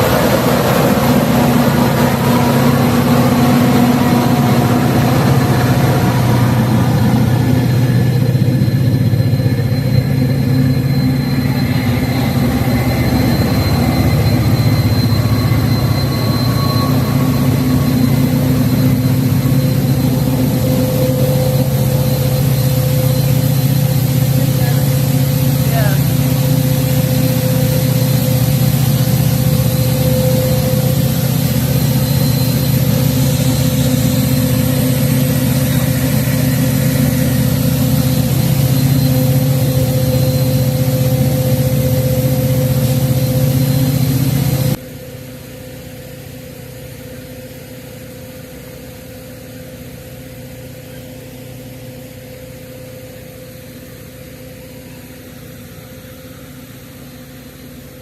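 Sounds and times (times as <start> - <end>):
vehicle engine running: 0.0 - 44.8.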